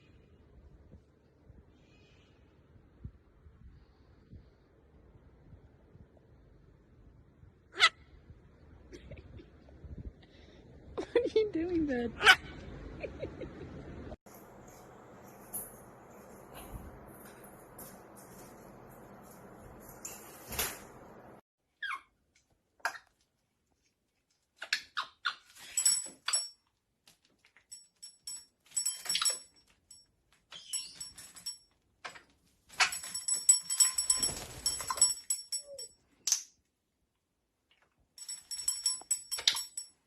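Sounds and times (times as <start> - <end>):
metallic jingling: 25.6 - 26.6, 27.6 - 36.0, 38.2 - 40.0.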